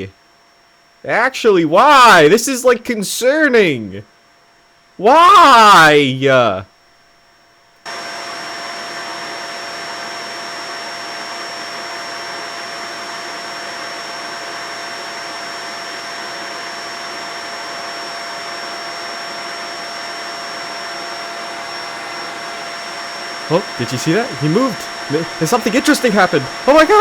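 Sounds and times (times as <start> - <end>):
vacuum cleaner running: 7.9 - 27.0.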